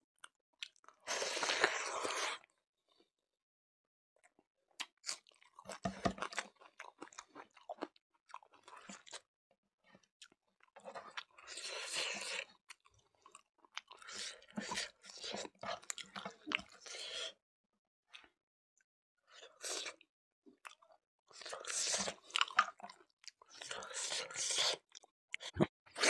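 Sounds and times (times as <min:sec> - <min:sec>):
chewing: 0:20.6 - 0:25.7.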